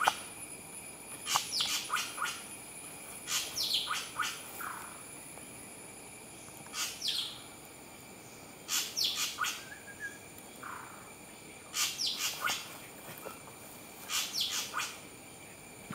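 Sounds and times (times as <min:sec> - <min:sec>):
small bird chirping: 0:01.2 - 0:02.5, 0:03.2 - 0:05.0, 0:06.4 - 0:07.5, 0:08.7 - 0:11.1, 0:11.7 - 0:12.8, 0:14.0 - 0:15.0.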